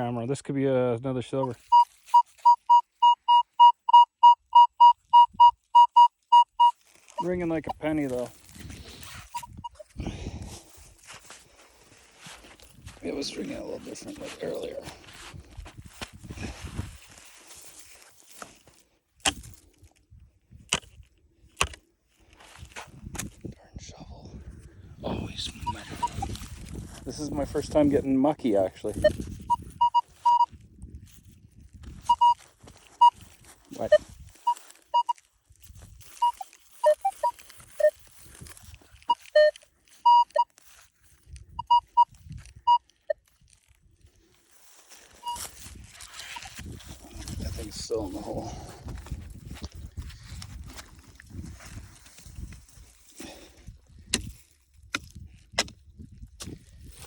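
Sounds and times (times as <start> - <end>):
metal detector beeps: 1.6 - 7.9, 9.0 - 9.9, 25.6 - 26.3, 29.0 - 30.5, 32.0 - 35.2, 36.0 - 38.0, 39.0 - 40.6, 41.5 - 43.2, 45.2 - 46.6.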